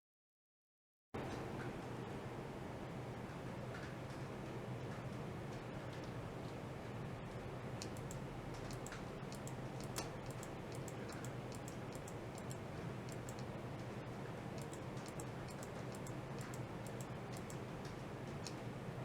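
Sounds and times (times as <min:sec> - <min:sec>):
low hum and hiss: 0:01.2 - 0:19.0
light clicks and ticks: 0:07.3 - 0:18.7.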